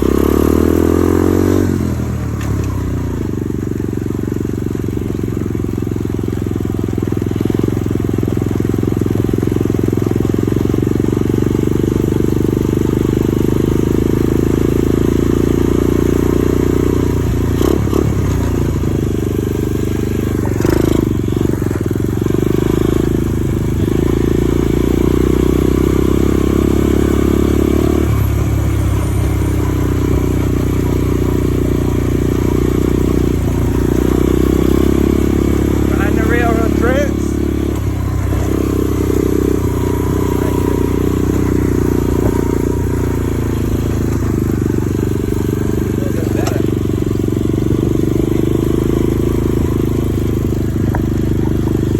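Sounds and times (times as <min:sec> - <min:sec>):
dirt bike engine running: 0:00.0 - 0:51.9.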